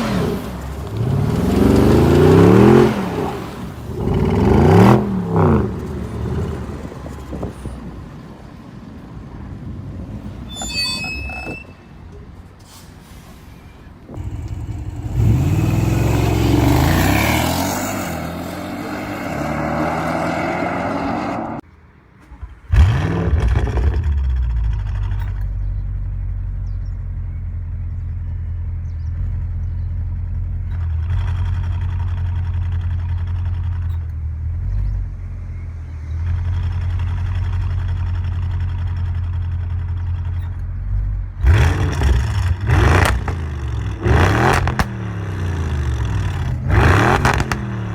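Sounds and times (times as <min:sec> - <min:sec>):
car engine revving: 0:00.0 - 0:07.5, 0:14.1 - 0:21.6, 0:22.3 - 0:28.1, 0:28.8 - 0:47.9
engine idling: 0:14.1 - 0:16.4, 0:22.2 - 0:47.6
sharp throttle blips: 0:41.4 - 0:47.9.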